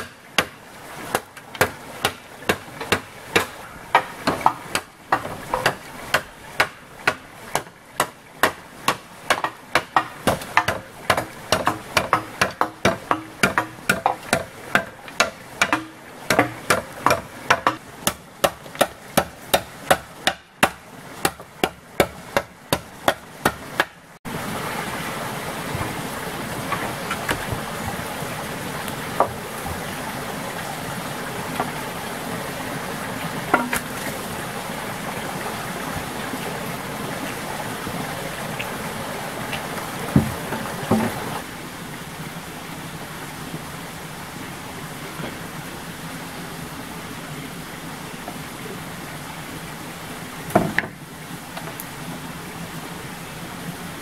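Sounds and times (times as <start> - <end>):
hammer striking: 0.0 - 24.0, 33.6 - 33.9.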